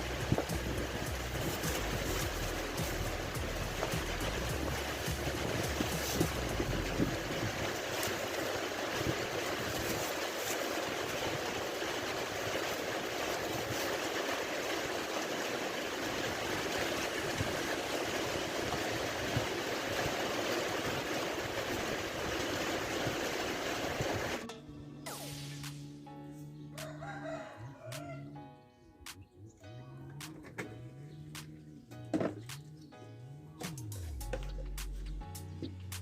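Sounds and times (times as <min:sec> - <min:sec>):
heavy rain pouring: 0:00.0 - 0:24.5.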